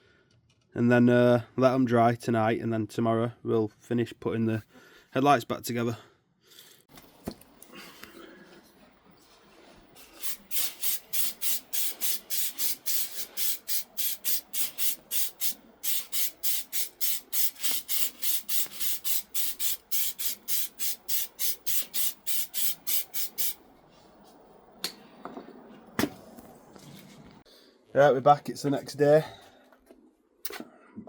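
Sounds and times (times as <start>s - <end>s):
spray can bursts: 10.0s - 23.6s.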